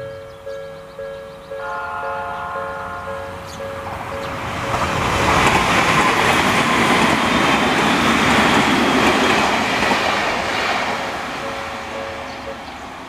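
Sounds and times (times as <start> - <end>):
crossing warning bell: 0.0 - 13.0
train wheels clattering: 3.2 - 13.0.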